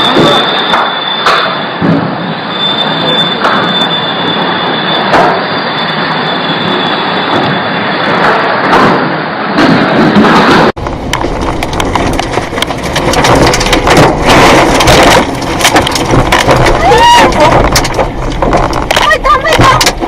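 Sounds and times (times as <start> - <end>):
storm wind roaring: 0.0 - 20.0
sharp crackles: 10.8 - 20.0.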